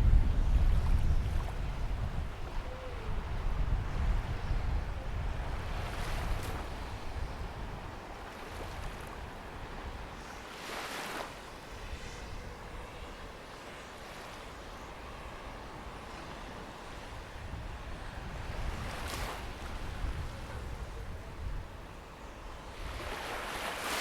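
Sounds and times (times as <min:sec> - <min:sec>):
small waves washing onto beach: 0:00.0 - 0:12.1, 0:12.9 - 0:24.0.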